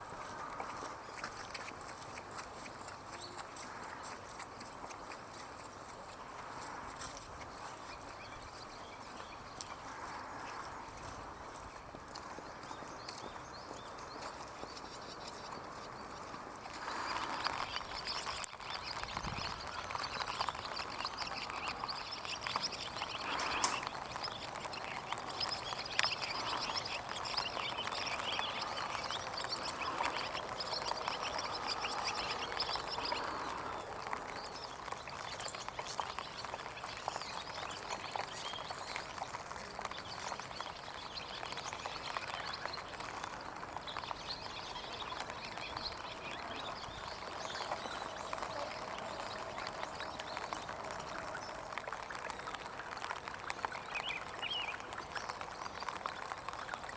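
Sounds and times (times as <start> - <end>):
birds chattering and twittering: 0.0 - 56.9
sharp ticks: 14.0 - 51.8.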